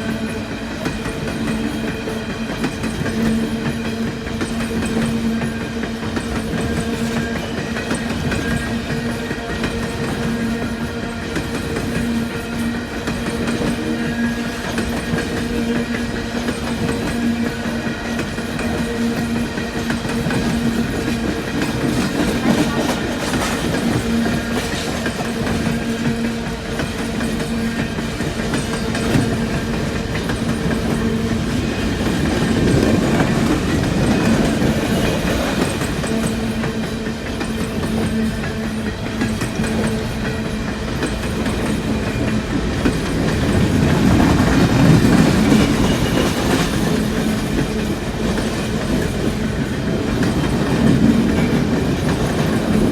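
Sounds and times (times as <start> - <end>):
freight train cars rolling past: 0.0 - 52.9
steel wheels clacking on rail joints: 0.0 - 52.9.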